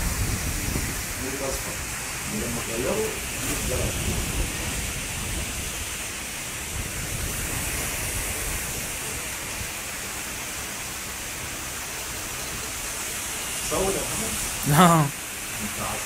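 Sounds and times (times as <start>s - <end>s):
heavy rain pouring on street: 0.0s - 16.0s.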